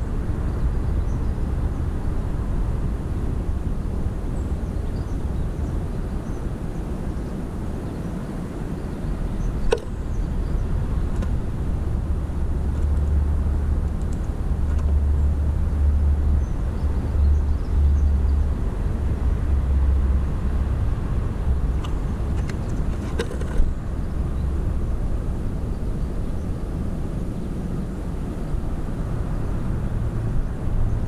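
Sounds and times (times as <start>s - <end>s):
sharp click: 9.6s - 9.9s.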